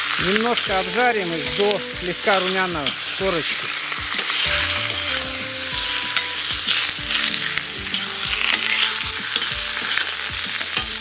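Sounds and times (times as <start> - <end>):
quail sizzling in butter: 0.0 - 11.0.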